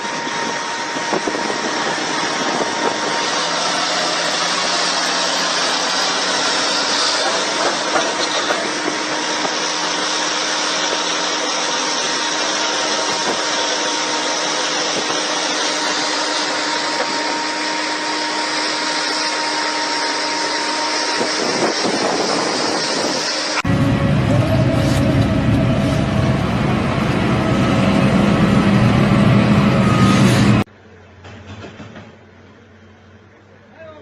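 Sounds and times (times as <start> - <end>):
machine rushing noise: 0.0 - 30.7
deep engine-like sound: 23.6 - 31.3.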